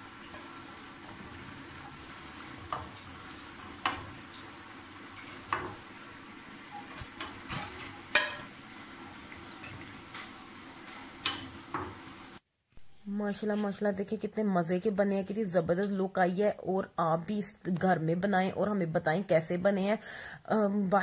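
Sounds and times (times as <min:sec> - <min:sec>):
food sizzling in hot oil: 0:00.0 - 0:12.4
metal spoon knocking on pan: 0:05.5 - 0:05.8, 0:07.2 - 0:08.5.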